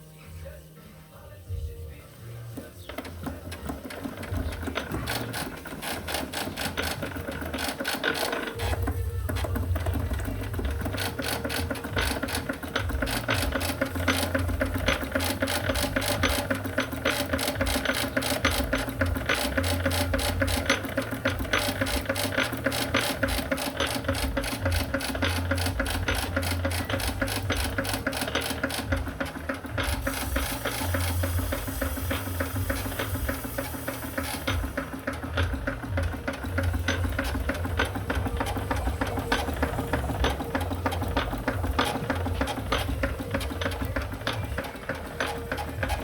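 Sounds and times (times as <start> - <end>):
steam engine clattering: 2.2 - 46.0
steam hiss: 29.9 - 35.2.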